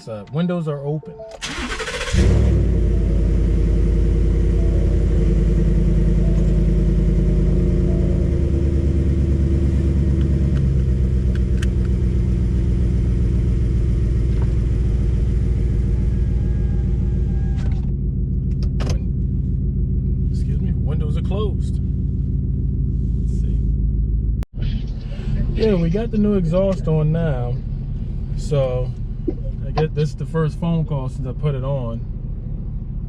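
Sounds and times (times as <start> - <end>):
engine cranking: 1.3 - 2.6
engine idling rumble: 1.4 - 33.0.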